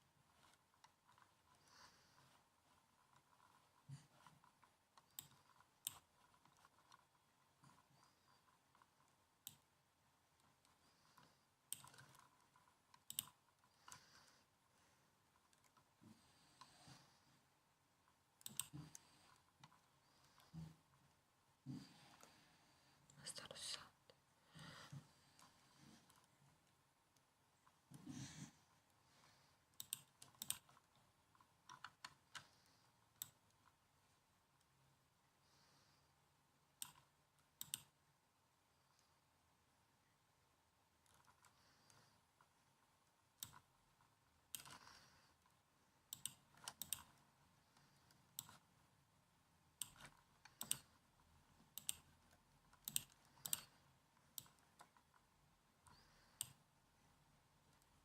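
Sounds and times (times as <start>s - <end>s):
laptop keystroke clicks: 13.0s - 13.4s, 29.8s - 30.7s, 36.8s - 37.9s, 46.1s - 47.1s, 49.8s - 50.9s, 51.7s - 52.1s, 52.8s - 53.7s.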